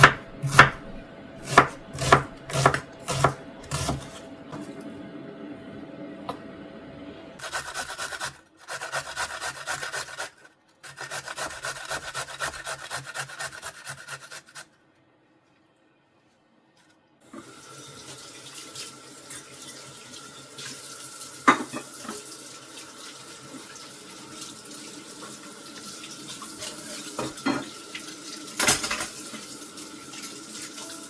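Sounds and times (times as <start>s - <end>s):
tap water running into sink: 17.4s - 31.0s.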